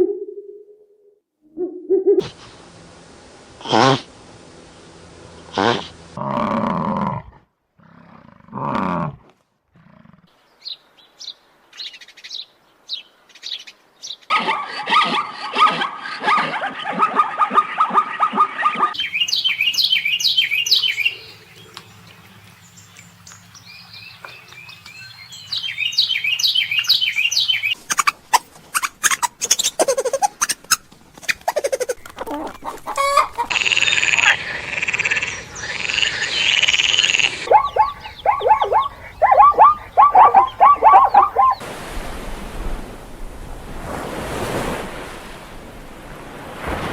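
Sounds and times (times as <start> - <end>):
birds chirping: 17.5 - 28.1, 31.6 - 41.6
rapid clicking animal calls: 27.7 - 41.6.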